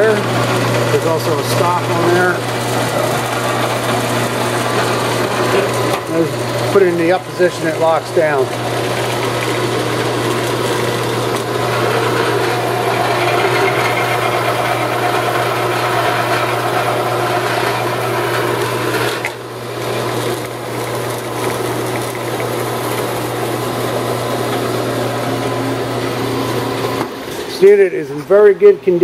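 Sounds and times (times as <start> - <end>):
band saw running: 0.0 - 29.0.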